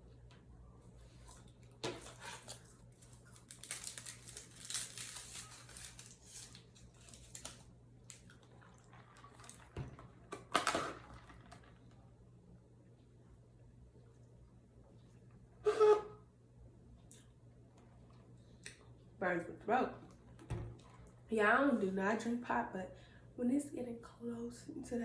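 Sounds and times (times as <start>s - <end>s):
faint steady hum: 0.0s - 25.0s
paper packaging crinkling: 1.8s - 11.9s.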